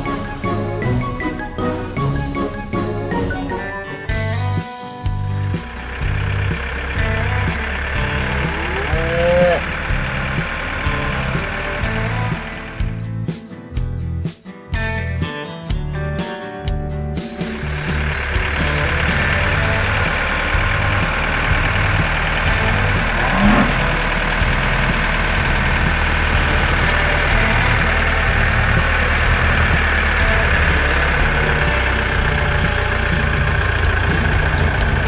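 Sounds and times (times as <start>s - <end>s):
diesel engine running under work: 0.0s - 3.6s, 4.2s - 13.2s, 17.4s - 35.0s
short rising whine: 17.6s - 34.8s.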